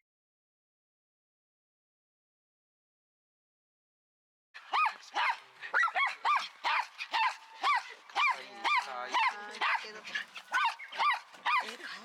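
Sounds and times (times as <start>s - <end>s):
dog yapping: 4.7s - 12.0s.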